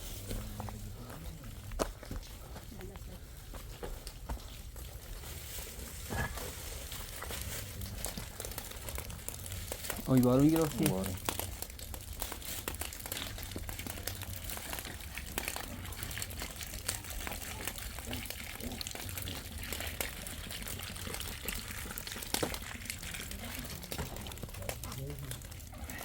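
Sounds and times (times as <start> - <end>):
steady rain falling: 5.3 - 20.2.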